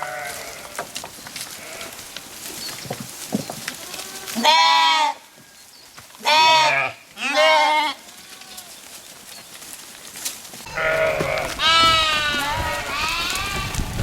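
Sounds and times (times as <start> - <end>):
sheep bleating: 0.0 - 0.7, 3.8 - 5.3, 6.2 - 8.7, 10.7 - 14.0.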